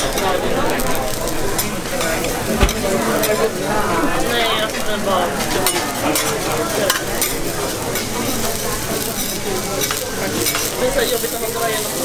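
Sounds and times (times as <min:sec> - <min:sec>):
food sizzling on a griddle: 0:04.8 - 0:12.0.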